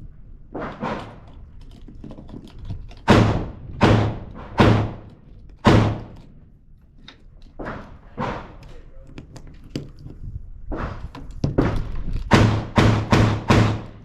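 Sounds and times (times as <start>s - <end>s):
gunshots with ringing tail: 3.1s - 6.1s, 11.6s - 14.0s.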